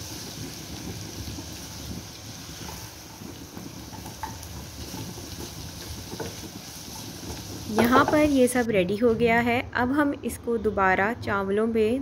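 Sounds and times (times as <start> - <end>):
food sizzling in a pan: 0.0 - 8.8
wooden spatula tapping a pan: 2.6 - 8.4.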